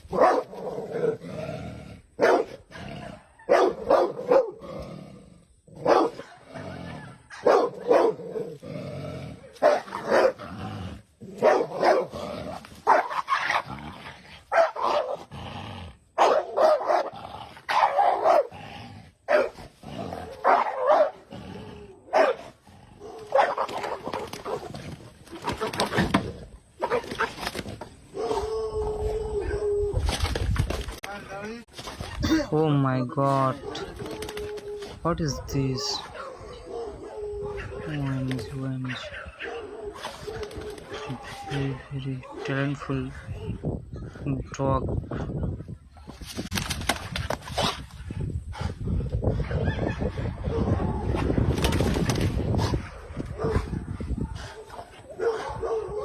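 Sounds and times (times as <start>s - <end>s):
dog barking: 0.1s - 0.5s, 2.2s - 4.6s, 5.8s - 8.2s, 9.6s - 10.4s, 11.4s - 12.1s, 12.8s - 13.4s, 14.5s - 15.2s, 16.2s - 17.1s, 17.7s - 18.5s, 19.3s - 19.6s, 20.4s - 21.2s, 22.1s - 24.7s, 35.4s - 38.2s, 38.9s - 41.6s, 54.6s - 56.0s.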